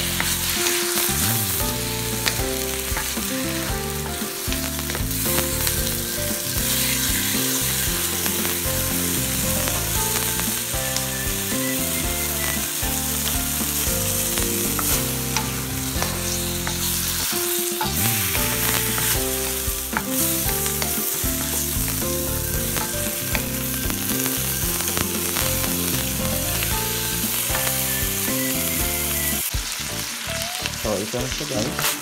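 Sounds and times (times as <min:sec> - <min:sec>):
background music: 0:00.0 - 0:32.0
food sizzling in a wok: 0:00.0 - 0:32.0
spatula scraping and tapping pan: 0:13.2 - 0:25.8.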